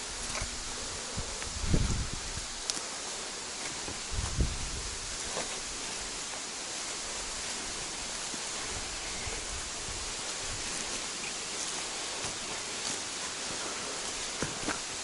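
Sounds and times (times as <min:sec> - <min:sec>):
waterfall rushing: 0:02.0 - 0:15.0.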